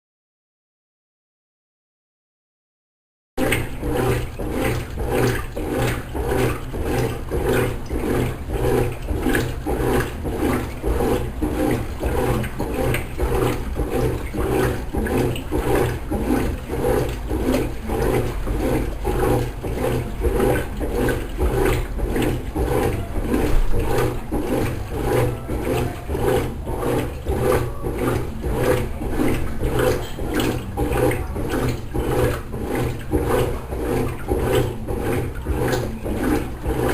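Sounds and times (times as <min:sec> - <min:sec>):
low motor hum: 0:03.4 - 0:36.9
washing machine churning water: 0:03.4 - 0:36.9.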